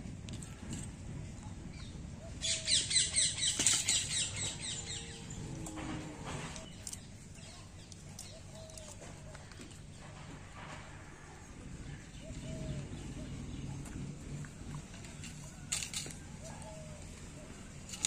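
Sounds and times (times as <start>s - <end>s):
faint outdoor background: 0.0s - 18.0s.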